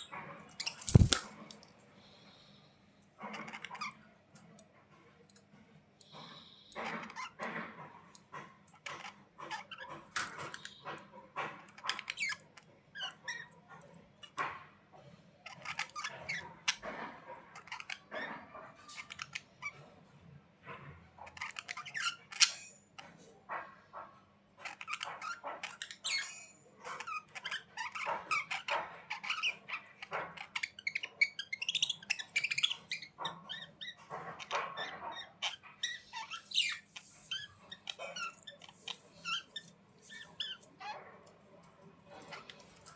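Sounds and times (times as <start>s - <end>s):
budgerigars chattering: 0.7s - 1.2s, 30.4s - 40.6s.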